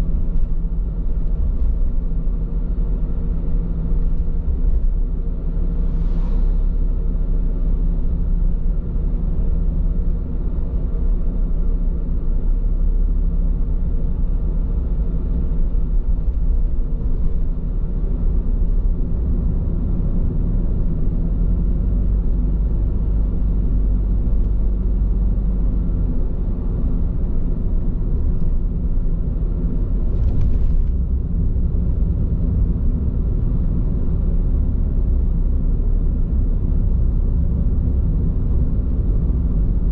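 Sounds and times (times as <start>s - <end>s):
tyre road rumble in car cabin: 0.0s - 39.9s
brief hiss: 5.8s - 6.8s.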